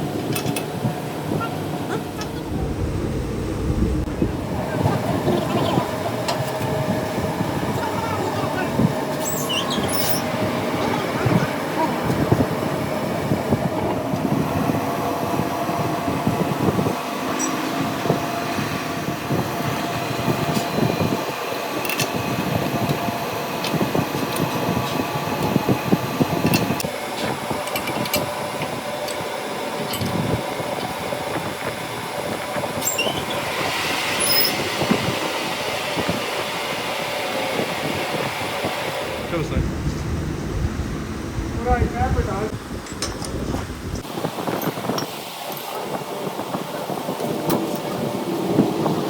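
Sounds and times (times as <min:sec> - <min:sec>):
metallic whining tones: 0:01.8 - 0:06.6
metalworking machine running: 0:01.8 - 0:13.4, 0:38.2 - 0:44.0.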